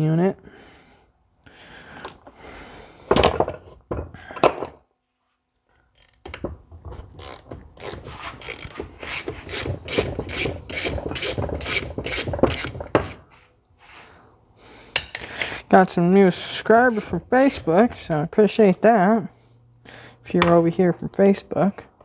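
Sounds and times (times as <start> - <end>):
hand ratchet clicking: 6.0 - 13.2
tools knocking on metal: 6.2 - 13.2.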